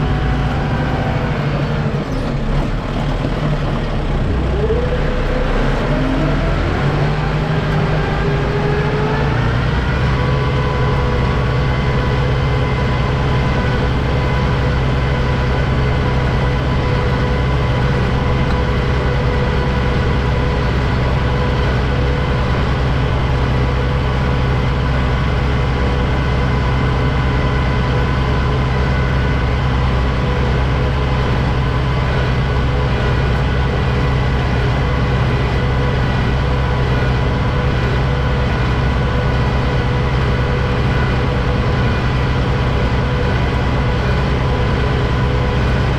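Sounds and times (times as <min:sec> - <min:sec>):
tractor diesel engine revving: 0:00.0 - 0:45.9
steady whine: 0:04.0 - 0:45.9.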